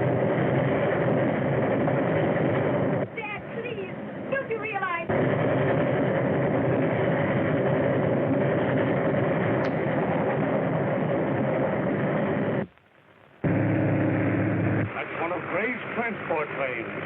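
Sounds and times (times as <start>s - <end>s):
low drone: 5.1s - 12.6s, 13.4s - 17.0s
vehicle noise: 13.4s - 17.0s.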